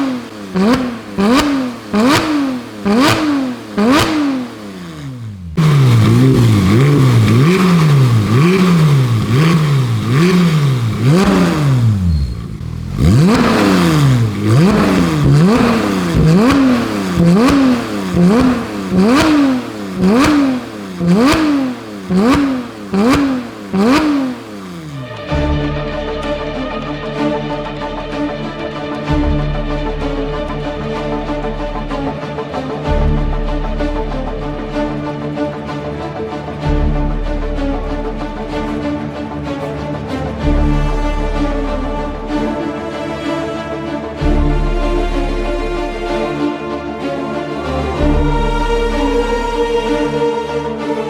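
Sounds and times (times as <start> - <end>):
car engine revving blips: 0.0 - 39.2.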